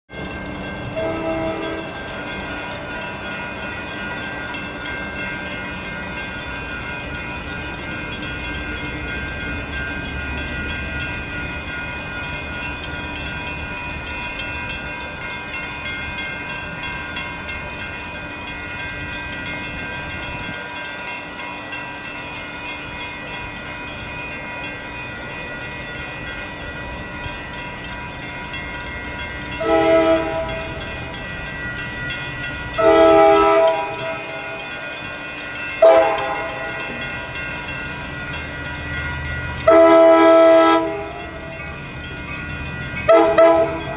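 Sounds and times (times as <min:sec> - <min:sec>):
train rumbling past: 0:00.1 - 0:43.9
train air horn blast: 0:01.0 - 0:02.0, 0:29.6 - 0:30.6, 0:32.8 - 0:34.2, 0:35.8 - 0:36.4, 0:39.7 - 0:41.2, 0:43.1 - 0:43.9.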